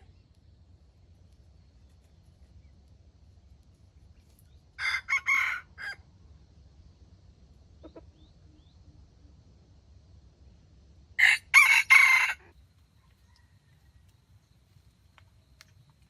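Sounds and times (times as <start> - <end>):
small birds chirping: 0.0 - 4.8, 7.7 - 9.3
rooster crowing: 4.8 - 6.0, 11.2 - 14.0.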